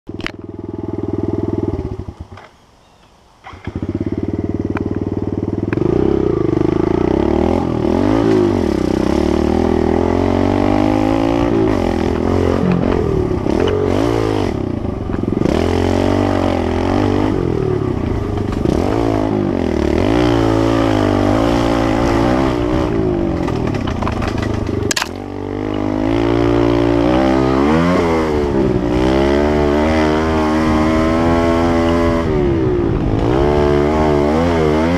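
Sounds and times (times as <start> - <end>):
pit bike engine revving: 0.2 - 2.4, 3.5 - 34.9.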